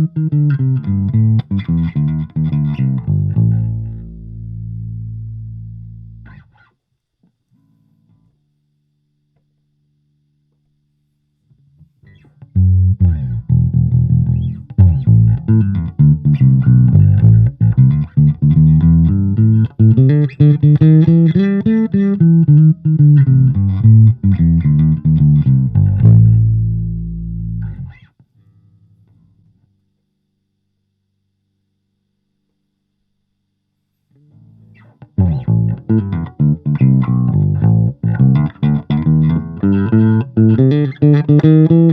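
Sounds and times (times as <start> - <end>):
electric bass guitar plucked notes: 0.0 - 6.6, 12.1 - 28.1, 34.3 - 41.9
faint amp hum: 0.0 - 41.9.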